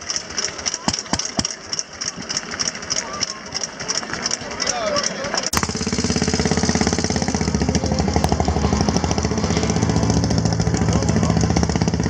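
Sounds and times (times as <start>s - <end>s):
motorcycle engine running: 5.5s - 12.0s.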